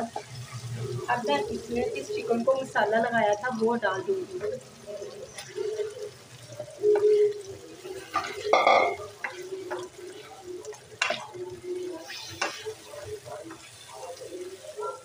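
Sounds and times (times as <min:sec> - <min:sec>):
chicken sizzling in hot oil: 0:00.0 - 0:15.0
wooden spoon stirring and scraping: 0:05.2 - 0:15.0.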